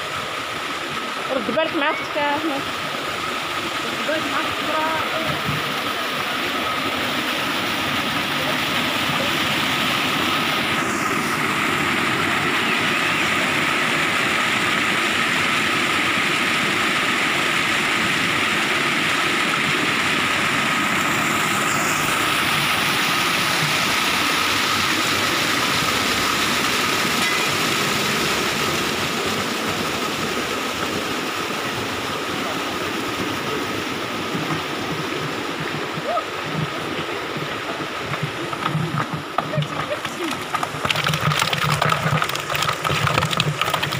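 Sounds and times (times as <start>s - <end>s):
water rushing: 0.0s - 43.9s
thin steady tone: 27.0s - 28.4s.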